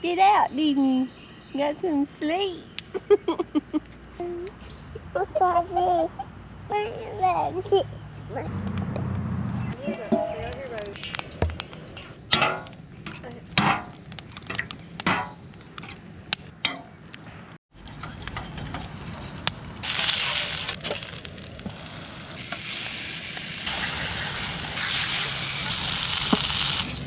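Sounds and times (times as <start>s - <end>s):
food sizzling in a pan: 19.8s - 27.0s.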